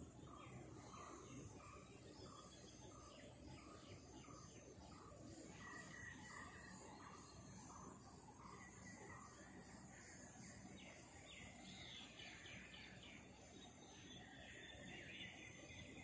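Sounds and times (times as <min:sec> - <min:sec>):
faint bird chirping: 0:00.0 - 0:16.0.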